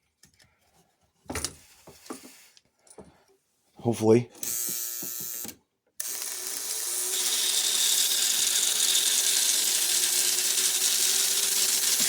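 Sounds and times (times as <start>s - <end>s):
electric motor whirring hum: 4.4s - 12.0s.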